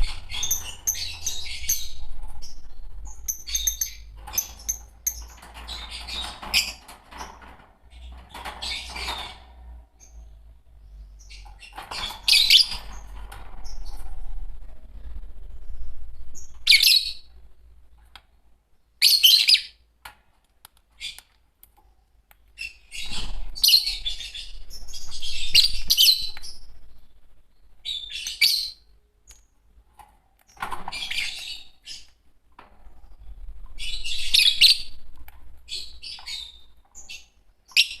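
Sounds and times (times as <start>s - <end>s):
lovebirds chirping and screeching: 0.0s - 17.5s, 22.6s - 29.4s, 30.4s - 32.2s, 32.8s - 38.0s.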